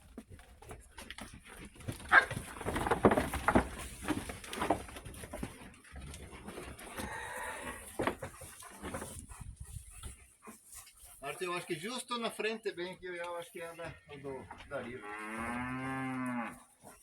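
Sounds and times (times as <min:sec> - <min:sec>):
dog sniffing and panting: 0:07.7 - 0:12.5, 0:16.6 - 0:17.0.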